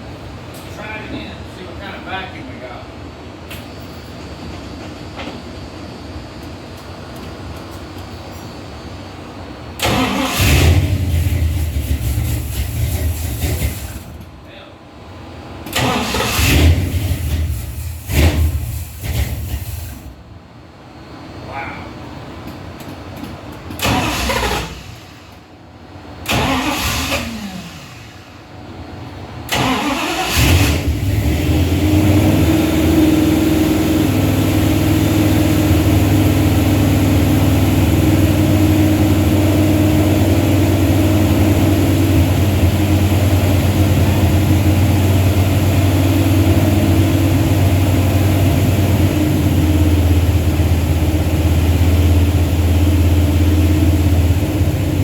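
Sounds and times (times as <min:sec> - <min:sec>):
car engine starting and running: 0:09.8 - 0:14.2, 0:15.6 - 0:20.1, 0:23.7 - 0:25.1, 0:26.2 - 0:28.4, 0:29.5 - 0:55.0.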